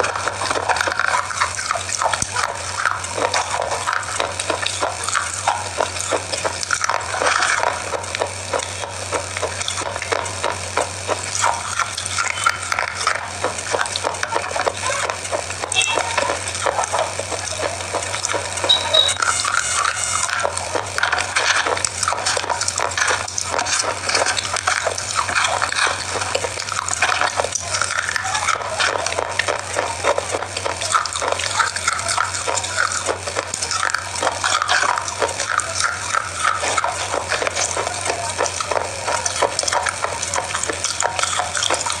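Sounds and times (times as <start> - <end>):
biscuits crunched and chewed: 0.0 - 42.0
low steady hum: 0.0 - 42.0.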